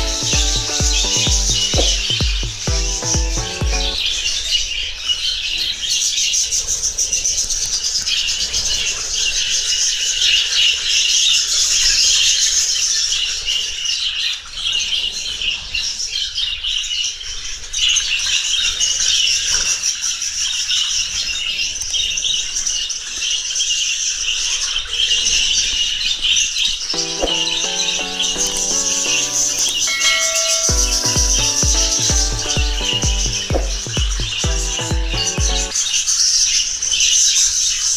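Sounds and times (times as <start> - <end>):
music: 0.0 - 4.0, 27.0 - 35.8.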